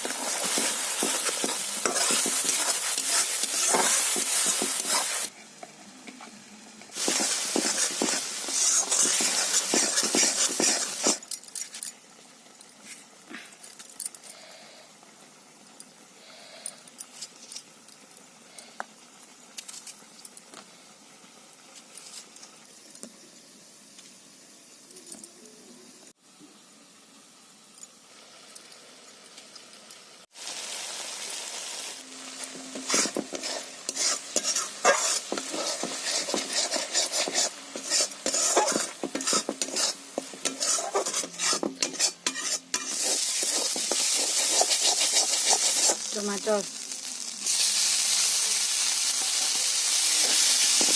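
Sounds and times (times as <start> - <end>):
spatula scraping and clinking in pan: 0.0 - 5.3, 7.0 - 11.3, 32.4 - 46.1
food sizzling in hot oil: 0.0 - 5.6, 6.4 - 13.3, 17.2 - 50.9.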